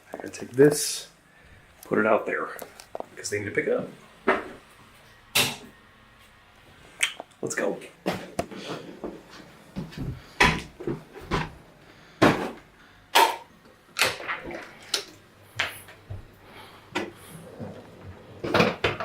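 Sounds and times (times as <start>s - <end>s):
objects knocking and clunking: 8.0s - 11.6s, 12.2s - 16.2s, 16.9s - 19.0s.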